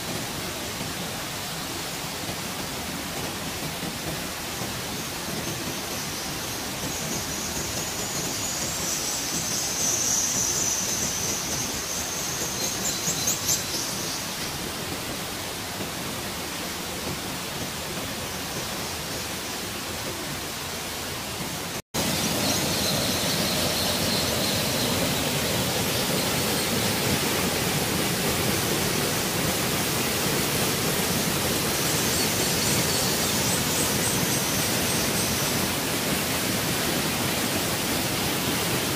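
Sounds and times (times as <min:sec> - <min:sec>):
waterfall rushing into pool: 0:00.0 - 0:38.9
swifts screeching in cave: 0:05.0 - 0:14.5, 0:22.0 - 0:38.7.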